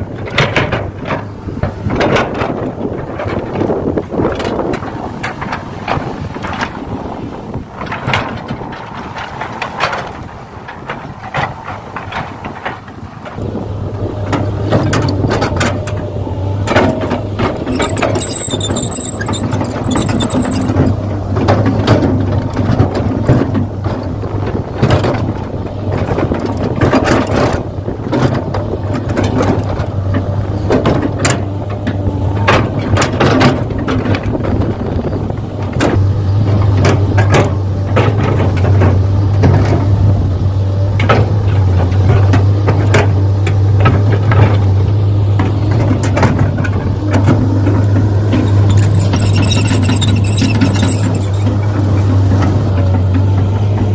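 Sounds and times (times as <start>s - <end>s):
steady motor hum: 0.0s - 53.9s
gear motors whirring: 16.6s - 20.8s, 48.3s - 51.7s
small clicks and knocks: 16.7s - 23.6s, 45.4s - 53.5s.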